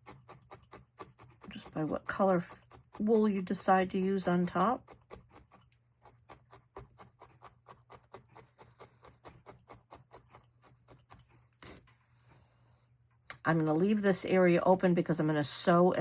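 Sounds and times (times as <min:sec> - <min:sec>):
felting needle poking wool: 0:00.0 - 0:12.0.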